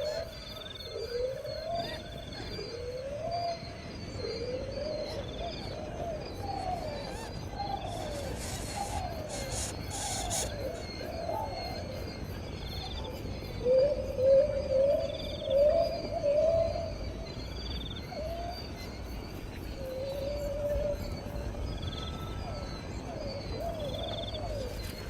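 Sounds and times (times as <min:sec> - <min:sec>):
low whistled bird calls: 0:00.0 - 0:13.0
faint high chirps: 0:07.0 - 0:11.9.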